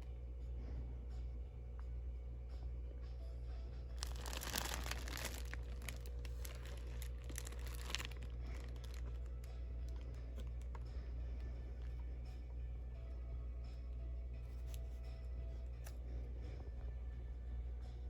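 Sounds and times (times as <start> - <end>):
steady low hum: 0.0 - 18.0
packaging crinkling and tearing: 4.0 - 10.8.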